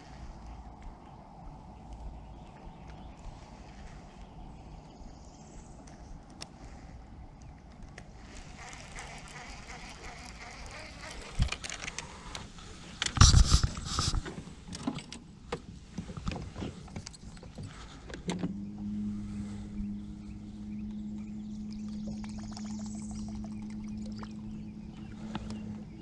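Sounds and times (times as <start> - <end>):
electric trolling motor humming: 8.2 - 12.5, 18.4 - 26.0
knocks and clatter in boat: 13.2 - 18.6.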